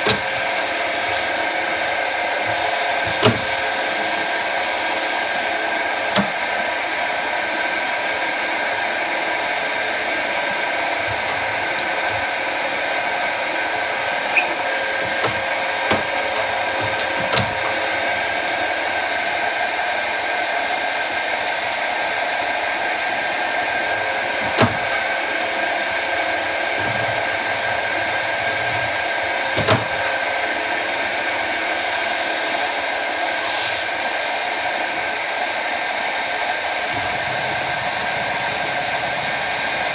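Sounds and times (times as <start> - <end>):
high hiss: 0.0 - 5.6, 31.4 - 39.9
lathe running with whirring hum: 0.0 - 39.9.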